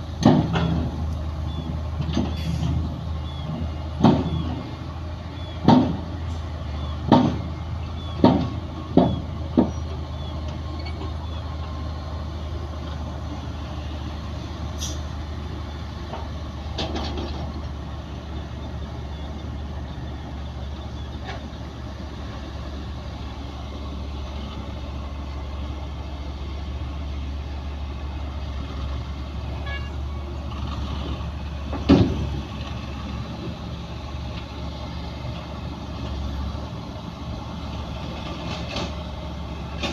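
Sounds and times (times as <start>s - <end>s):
diesel machinery droning: 0.0s - 39.9s
metallic clanks and knocks: 0.2s - 1.0s, 7.1s - 7.6s, 16.1s - 17.7s.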